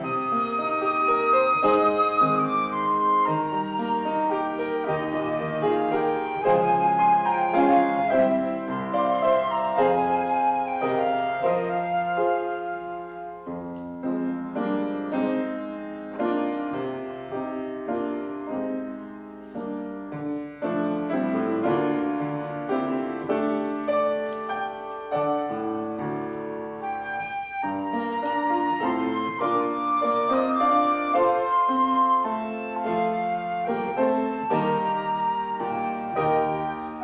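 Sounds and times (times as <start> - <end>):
flute: 0.0 - 37.0
slow classical piano piece: 0.0 - 37.0.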